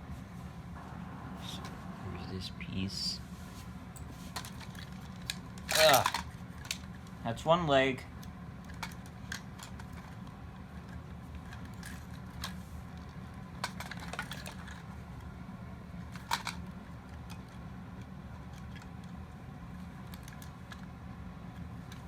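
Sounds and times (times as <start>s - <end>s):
steady low hum: 0.0s - 22.0s
plastic parts clicking and knocking: 8.6s - 10.2s, 13.6s - 14.8s, 16.1s - 17.5s.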